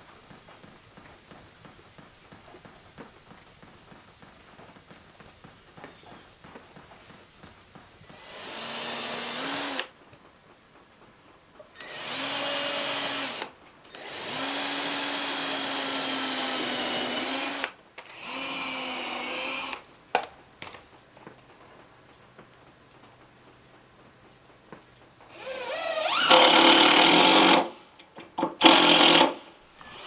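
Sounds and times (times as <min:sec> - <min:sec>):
power drill driving fasteners: 0:08.0 - 0:10.0, 0:11.8 - 0:19.9, 0:25.3 - 0:30.0.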